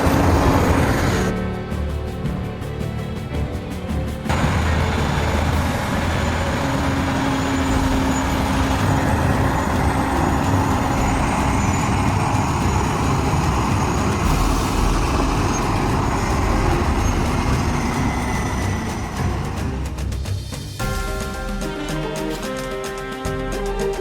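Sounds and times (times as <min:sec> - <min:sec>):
heavy truck engine rumble: 0:00.0 - 0:01.3, 0:03.4 - 0:20.6
road noise: 0:00.0 - 0:20.9
steady tone: 0:04.3 - 0:20.1.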